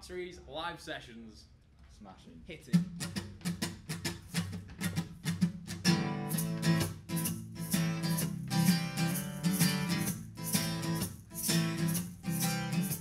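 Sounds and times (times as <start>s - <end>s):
guitar strumming: 2.8s - 13.0s.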